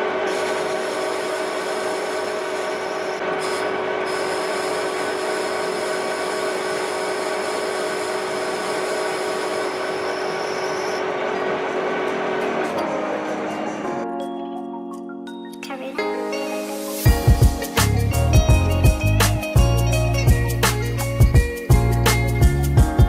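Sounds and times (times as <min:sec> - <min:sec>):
power tool motor hum: 0:00.0 - 0:12.6.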